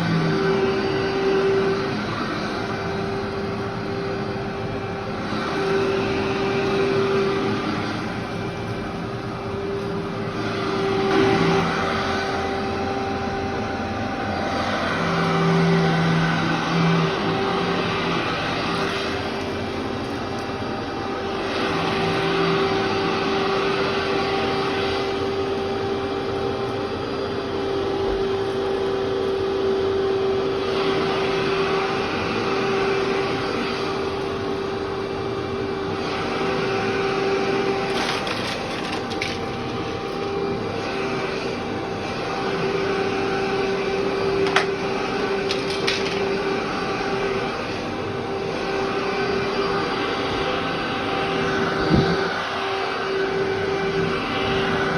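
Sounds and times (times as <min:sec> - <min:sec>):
vacuum cleaner motor whine: 0:00.0 - 0:54.9
debris ticking and crunching: 0:37.9 - 0:39.8, 0:45.4 - 0:46.4.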